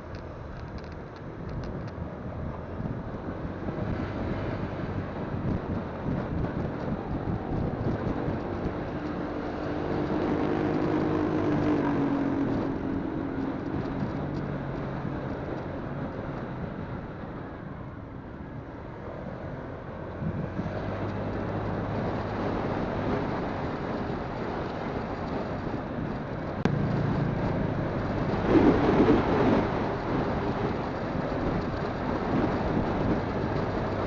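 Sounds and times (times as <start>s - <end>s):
wind and road noise: 0.0s - 34.0s
motorcycle engine: 26.0s - 34.0s.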